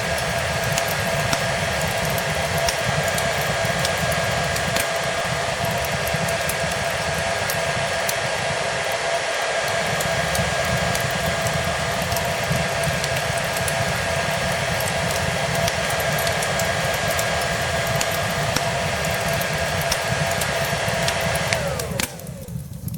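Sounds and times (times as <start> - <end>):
fireplace crackling: 0.0 - 22.9
hair dryer whining: 0.0 - 22.9.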